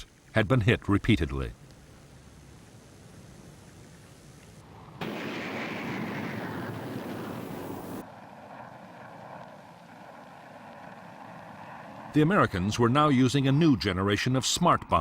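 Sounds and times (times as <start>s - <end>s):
aircraft engine drone: 1.9s - 15.0s
jet aircraft flying past: 4.7s - 14.0s.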